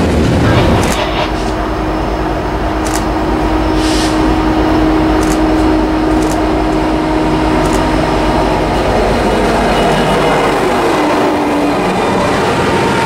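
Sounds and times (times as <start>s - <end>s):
freight train rumbling: 0.0s - 13.0s.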